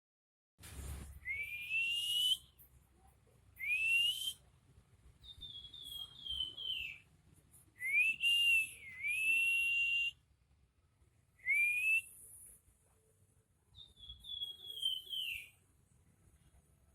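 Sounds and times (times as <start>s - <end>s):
songbird whistling: 1.2s - 2.6s, 3.6s - 4.4s, 5.2s - 7.1s, 7.8s - 10.2s, 11.4s - 12.4s, 13.8s - 15.6s.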